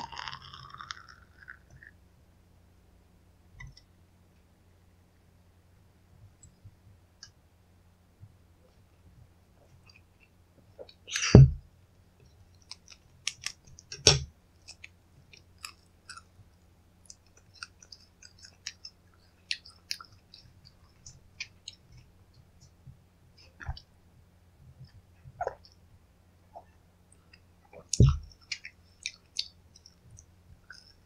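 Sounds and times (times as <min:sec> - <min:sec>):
snack crunching: 0:00.0 - 0:01.9, 0:12.6 - 0:13.7, 0:14.6 - 0:16.4, 0:17.0 - 0:21.8
small crackles and clicks: 0:12.2 - 0:22.8, 0:27.1 - 0:31.0.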